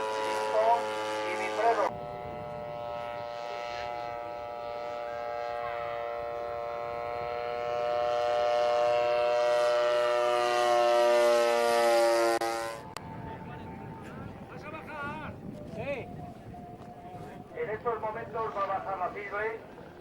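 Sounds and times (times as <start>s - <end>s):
model airplane engine buzzing: 0.0s - 14.5s.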